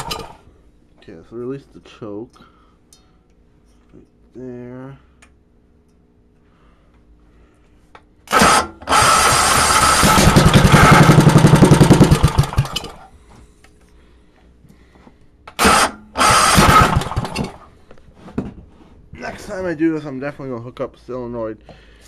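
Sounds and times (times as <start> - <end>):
engine electric starter cranking: 0.0 - 0.4, 8.3 - 13.1, 15.5 - 17.7.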